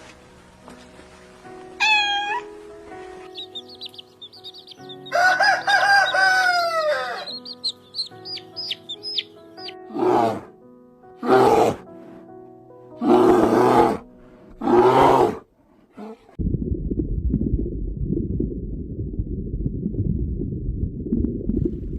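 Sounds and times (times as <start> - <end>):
background music: 0.0 - 15.5.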